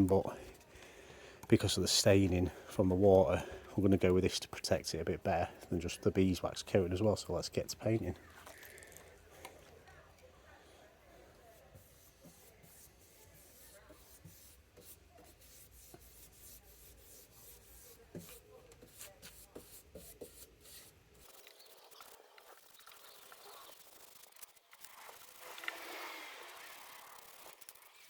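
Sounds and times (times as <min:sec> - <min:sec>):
paintbrush brushing on wood: 0:11.2 - 0:22.8
brush rubbing: 0:11.5 - 0:24.4.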